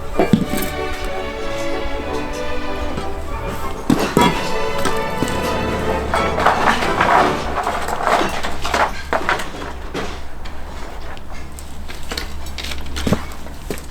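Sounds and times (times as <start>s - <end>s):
wooden floorboards creaking: 0.0s - 13.9s.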